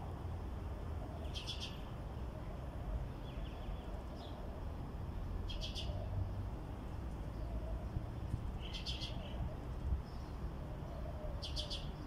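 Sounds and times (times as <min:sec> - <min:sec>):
small birds chirping: 0:01.1 - 0:02.4, 0:05.4 - 0:06.2, 0:08.5 - 0:12.0.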